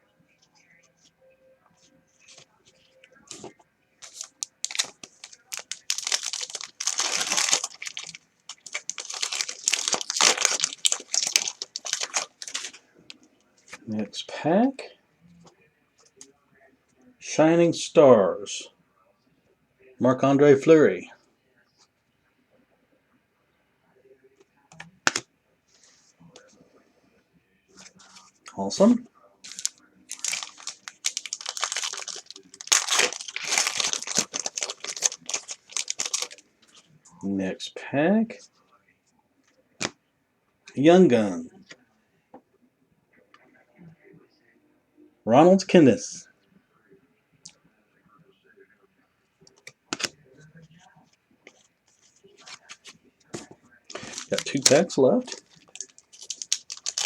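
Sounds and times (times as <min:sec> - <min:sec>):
foil wrapper crinkling: 0:03.3 - 0:12.8, 0:29.4 - 0:36.4, 0:51.5 - 0:57.0.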